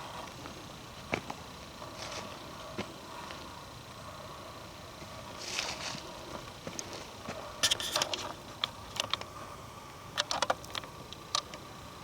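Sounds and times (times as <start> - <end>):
footsteps crunching on twigs: 0.2 - 3.5, 5.0 - 8.3.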